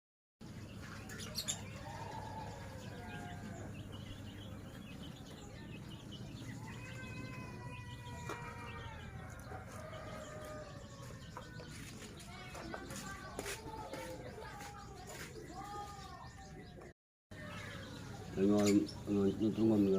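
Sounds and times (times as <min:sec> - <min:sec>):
birds calling: 0:00.4 - 0:19.9.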